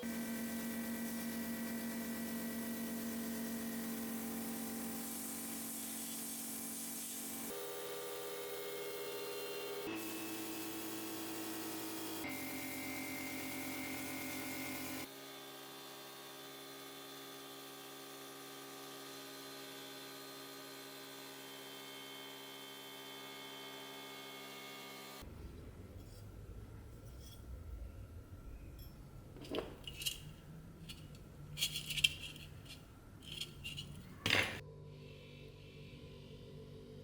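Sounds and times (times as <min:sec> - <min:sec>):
metal objects scraping and clinking: 0:26.0 - 0:27.8, 0:28.6 - 0:34.6.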